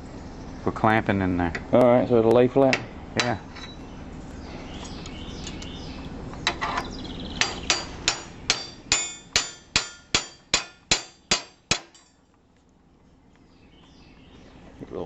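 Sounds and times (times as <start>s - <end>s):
hammer striking metal: 7.4s - 12.2s.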